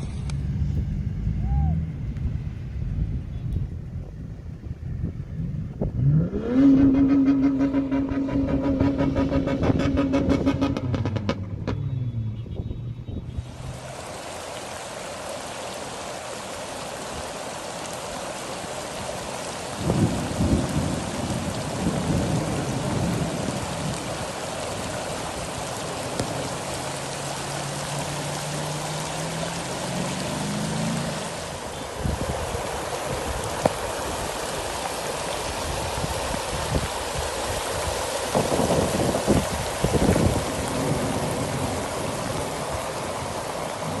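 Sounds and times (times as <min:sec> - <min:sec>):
low hum rising in pitch: 0:00.0 - 0:13.8
low rumbles: 0:00.0 - 0:14.0
heavy rain: 0:05.8 - 0:12.3, 0:13.4 - 0:44.0.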